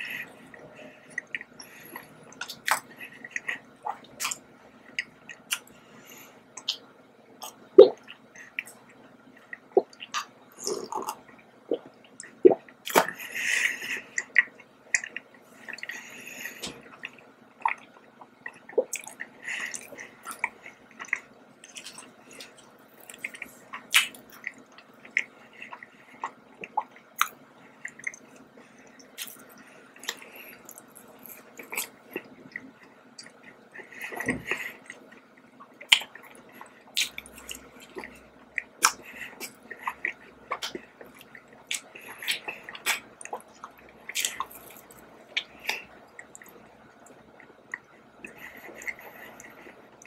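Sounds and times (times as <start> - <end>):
person chewing: 1.0 - 5.8, 6.6 - 8.8, 9.4 - 35.2, 35.8 - 50.0
wet mouth clicks and smacks: 38.6 - 43.5.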